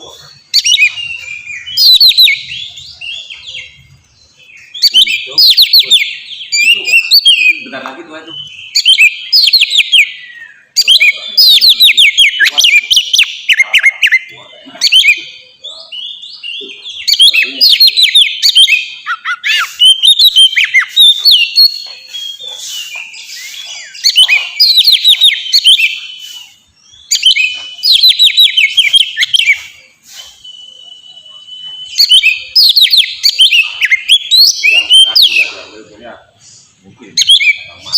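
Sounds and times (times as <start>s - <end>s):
magpie-robin singing: 0.0s - 37.9s
held bird whistle: 17.0s - 35.7s.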